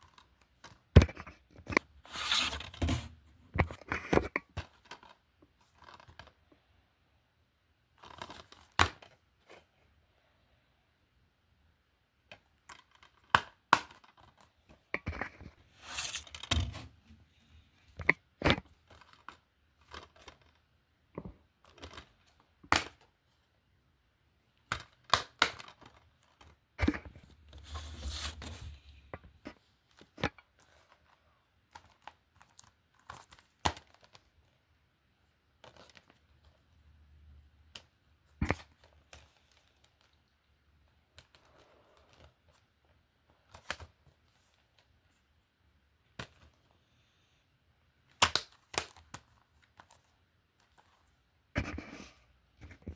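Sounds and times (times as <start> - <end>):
rustling and scraping: 0.1 - 6.3, 14.2 - 17.4, 25.8 - 31.2.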